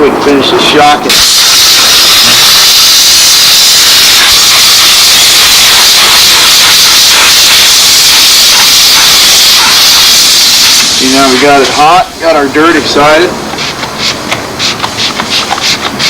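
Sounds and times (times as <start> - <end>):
steam cleaner hissing: 1.1 - 12.4.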